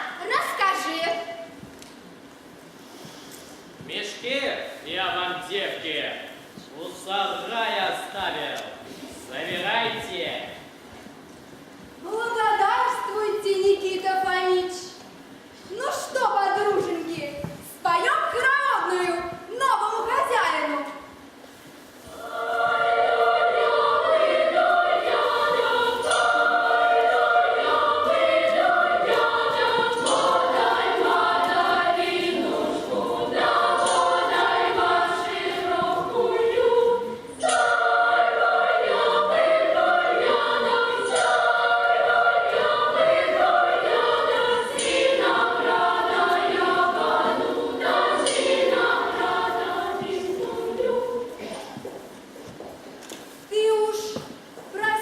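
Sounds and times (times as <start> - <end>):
women singing folk song together: 22.1 - 52.0.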